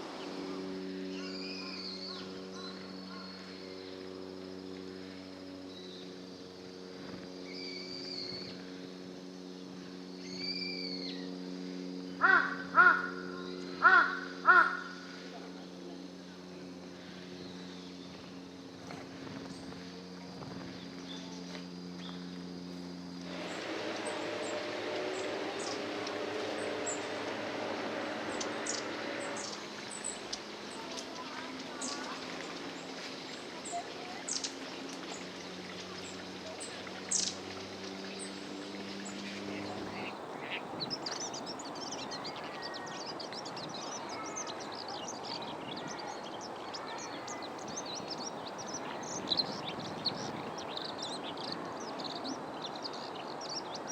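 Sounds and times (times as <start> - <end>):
large bird calling: 0.0 - 3.6, 12.1 - 15.2, 23.3 - 32.9, 39.0 - 53.9
steady low hum: 0.0 - 53.9
small bird high calls: 1.1 - 3.6, 23.3 - 32.2, 39.0 - 53.9.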